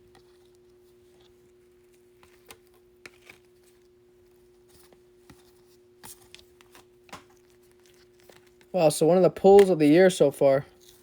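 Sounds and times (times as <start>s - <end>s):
trading cards and packaging clicking: 9.5s - 11.0s.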